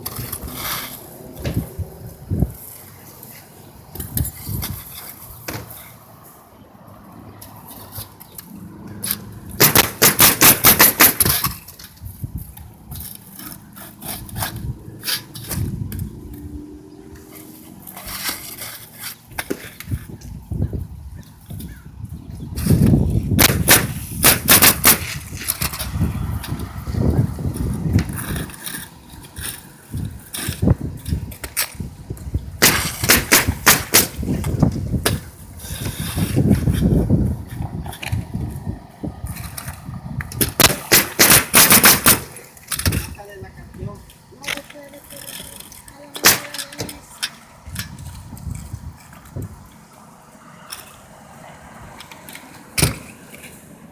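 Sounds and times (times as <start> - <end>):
low rumbling handling noise: 7.3 - 50.0
sharp roofing knocks: 9.6 - 11.6, 22.7 - 25.2, 32.6 - 35.3, 40.4 - 43.1.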